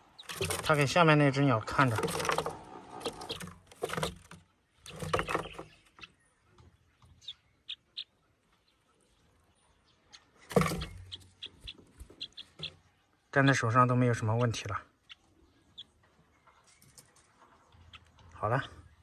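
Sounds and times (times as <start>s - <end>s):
sparrow chirping: 0.0s - 19.0s
rustling: 0.1s - 1.1s, 1.7s - 5.8s.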